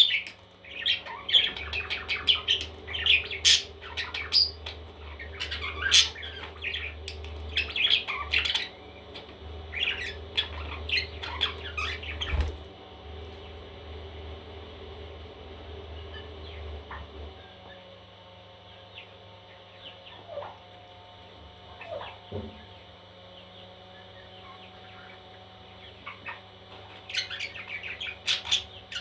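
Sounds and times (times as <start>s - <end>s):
steady low hum: 0.0s - 29.0s
baby parrots squawking and chirping: 0.7s - 8.8s, 9.7s - 12.6s, 26.0s - 29.0s.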